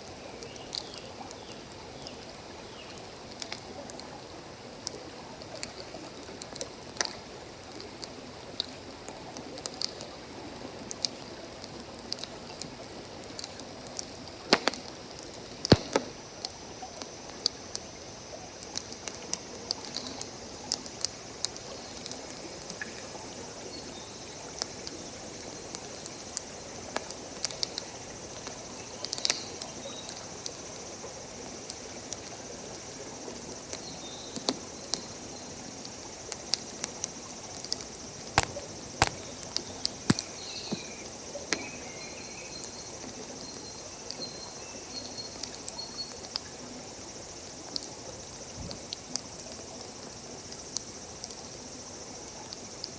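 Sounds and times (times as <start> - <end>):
stream water running: 0.0 - 52.9
campfire crackling and popping: 4.8 - 17.9, 24.4 - 30.7, 35.8 - 43.2
faint high chirps: 38.4 - 46.2.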